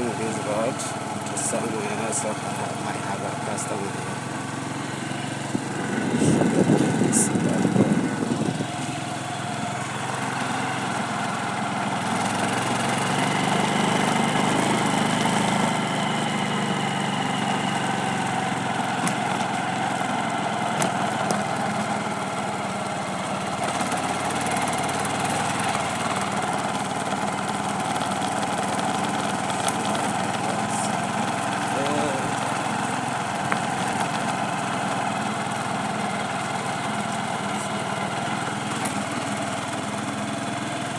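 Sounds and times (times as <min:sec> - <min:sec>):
road noise: 0:00.0 - 0:40.9
small vehicle engine running: 0:00.0 - 0:40.9
wind noise: 0:06.1 - 0:08.7.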